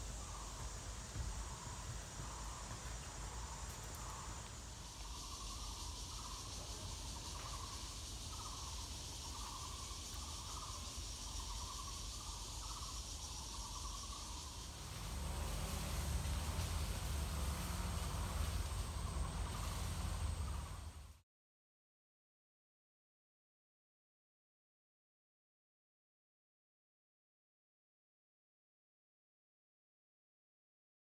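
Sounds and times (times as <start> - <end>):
high insect buzz: 0.0 - 21.2
insects chirping: 0.0 - 21.2.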